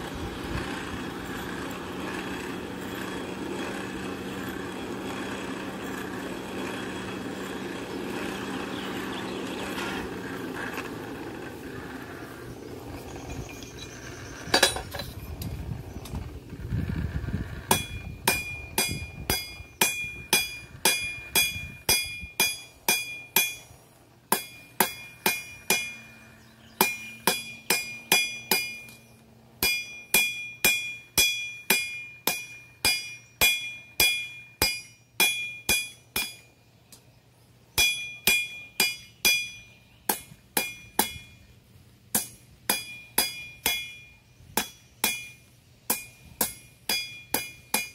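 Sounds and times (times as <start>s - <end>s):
hammer ringing on anvil: 17.7s - 23.7s, 24.3s - 26.2s, 26.8s - 36.5s, 37.8s - 41.4s, 42.2s - 47.9s.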